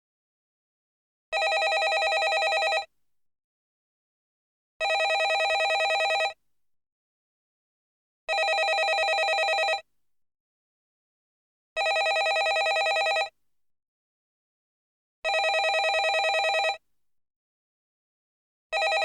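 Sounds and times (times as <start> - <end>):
telephone ringing: 1.4 - 2.9, 4.8 - 6.4, 8.3 - 9.8, 11.8 - 13.3, 15.3 - 16.8, 18.8 - 19.0.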